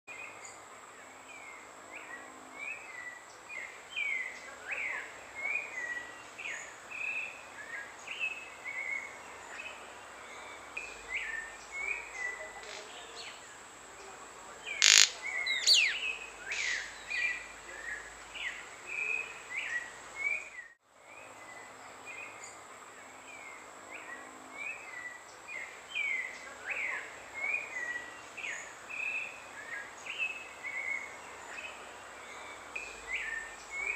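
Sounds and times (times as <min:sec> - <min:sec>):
short bird chirps: 0:14.8 - 0:16.0.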